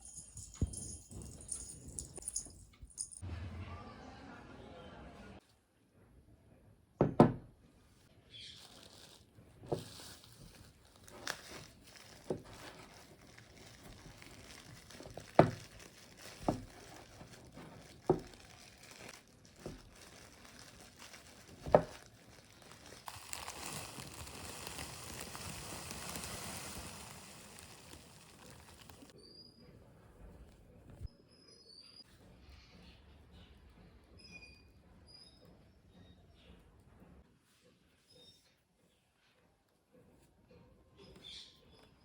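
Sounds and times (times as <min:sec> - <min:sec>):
crinkling: 0:08.3 - 0:29.2.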